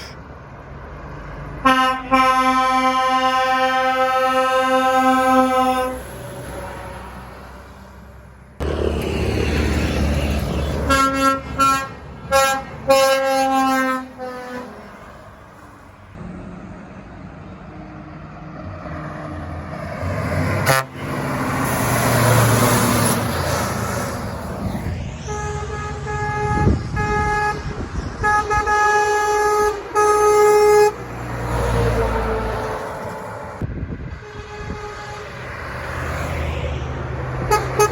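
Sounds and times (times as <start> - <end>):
loud vehicle passing: 0.3 - 37.9
truck horn toots: 1.6 - 6.0, 10.2 - 14.8, 20.6 - 21.2, 25.2 - 31.0, 34.2 - 35.4, 37.4 - 37.9
truck engine running: 8.2 - 12.9.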